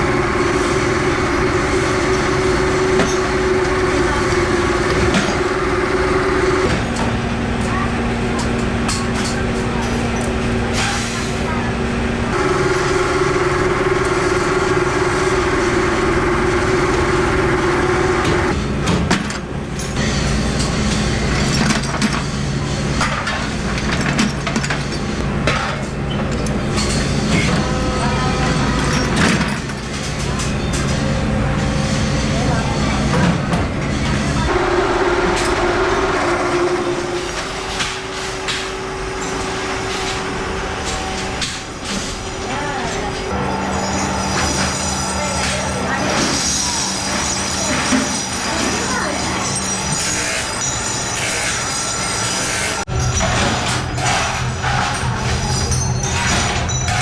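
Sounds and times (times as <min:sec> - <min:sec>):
noisy rumble: 0:00.0 - 0:06.8, 0:12.3 - 0:18.6
workshop machinery humming: 0:00.0 - 0:52.9.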